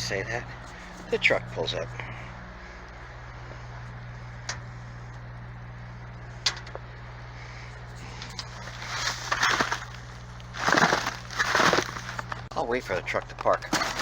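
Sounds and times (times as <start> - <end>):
steady low hum: 0.0 - 14.0
footsteps crunching in snow: 8.5 - 12.5, 13.7 - 14.0.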